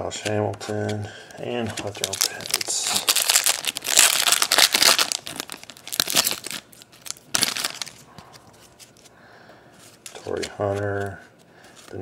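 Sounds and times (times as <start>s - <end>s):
foil wrapper tearing and crinkling: 1.8s - 8.0s.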